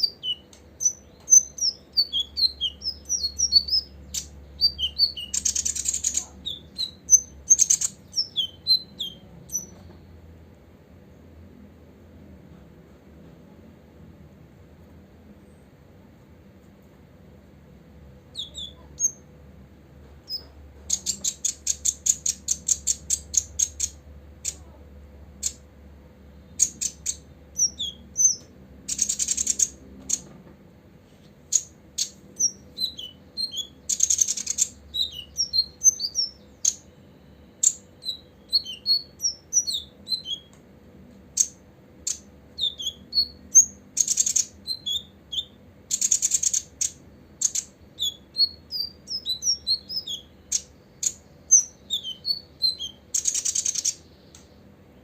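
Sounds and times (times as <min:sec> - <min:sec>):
bird buzzy trills: 0:00.0 - 0:09.8, 0:26.4 - 0:30.2, 0:31.4 - 0:40.5, 0:41.3 - 0:55.0
bird singing high chirps: 0:00.0 - 0:10.0, 0:18.3 - 0:19.3, 0:20.3 - 0:24.7, 0:26.3 - 0:30.3, 0:31.5 - 0:40.6, 0:41.4 - 0:55.0.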